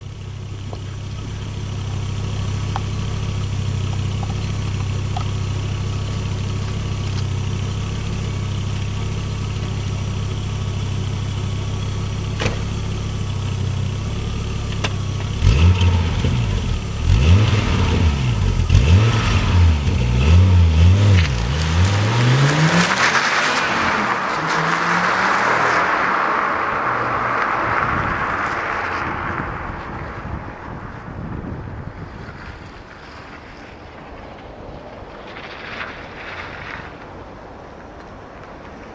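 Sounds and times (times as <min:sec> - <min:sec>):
car engine idling and revving: 0:00.0 - 0:38.8
rushing noise: 0:20.5 - 0:38.9.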